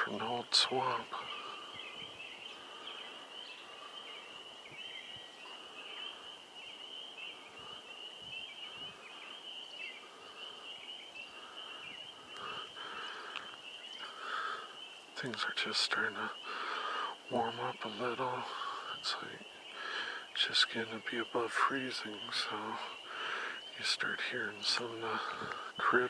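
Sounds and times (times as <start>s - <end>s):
low clucking frog calls: 0.0s - 26.0s
high-pitched frog chorus: 5.5s - 26.0s.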